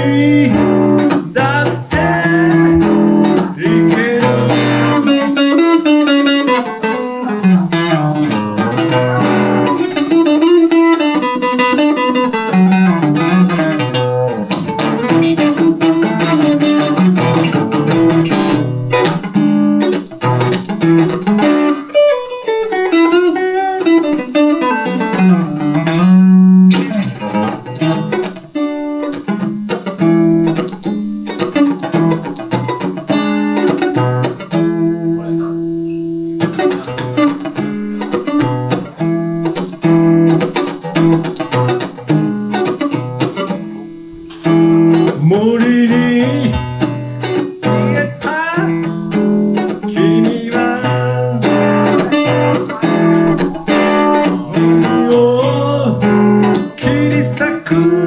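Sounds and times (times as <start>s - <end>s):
electric guitar playing: 0.0s - 58.0s.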